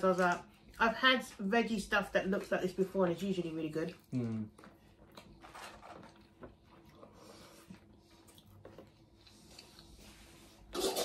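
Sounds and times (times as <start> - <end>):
faint chewing and mouth clicks: 3.8 - 10.4.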